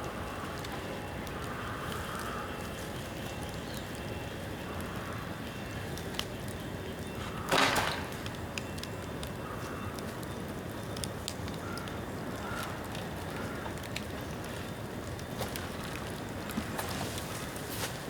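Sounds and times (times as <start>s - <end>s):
bonfire crackling and popping: 0.0s - 18.0s
bamboo bursting in fire: 7.5s - 8.8s.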